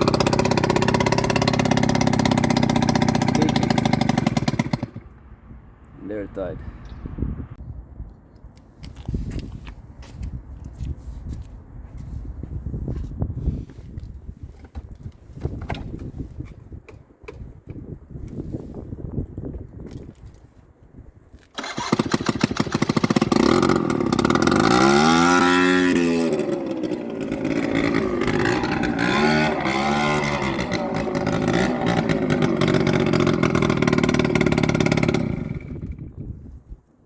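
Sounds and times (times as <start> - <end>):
scooter engine revving rattly: 0.0 - 5.0, 21.6 - 36.0.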